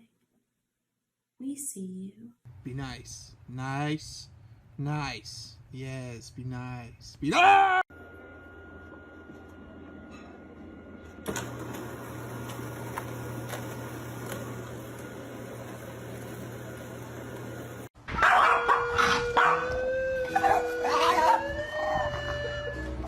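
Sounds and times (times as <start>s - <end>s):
low hum: 7.9s - 17.9s
dog howling: 18.2s - 23.0s.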